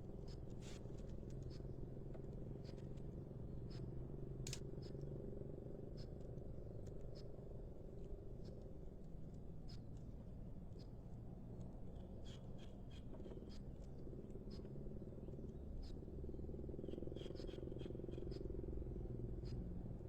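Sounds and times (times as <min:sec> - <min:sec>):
small birds chipping: 0:16.8 - 0:18.6.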